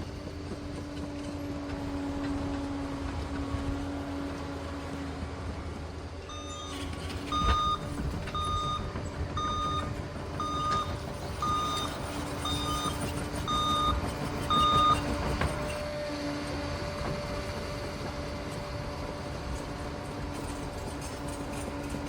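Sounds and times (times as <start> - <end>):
diesel engine rumble: 0.0 - 22.0
back-up alarm beeping: 6.3 - 15.1.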